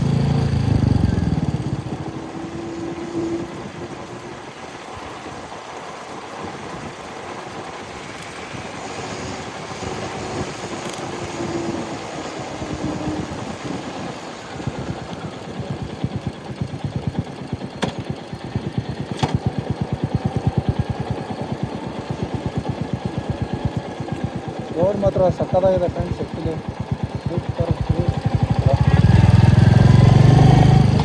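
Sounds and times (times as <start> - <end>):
road and wind noise: 0.0 - 31.0
motorcycle engine thumping: 14.7 - 31.0
sharp clicks: 19.0 - 24.6.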